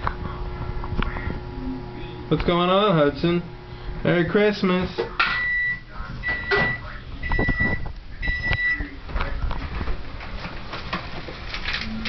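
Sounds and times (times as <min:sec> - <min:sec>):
kitchen appliance beeping: 0:05.2 - 0:08.9.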